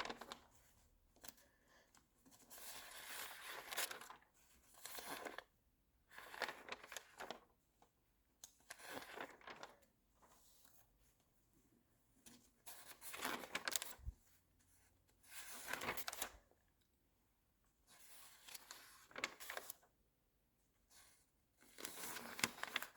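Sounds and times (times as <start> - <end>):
magazine pages turning: 6.3 - 7.5, 8.7 - 9.8, 12.7 - 14.1, 15.4 - 16.4.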